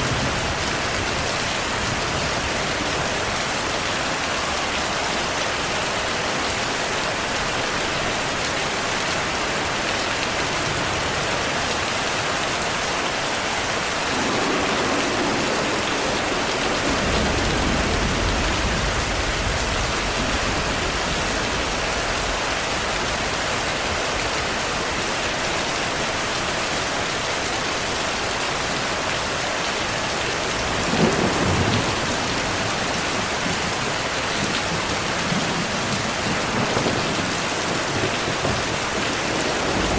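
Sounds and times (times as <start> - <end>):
heavy rain hissing: 0.0 - 39.9
rolling thunder: 14.0 - 23.0, 30.5 - 33.8, 34.4 - 39.9
sharp thunderclap: 14.1 - 21.8.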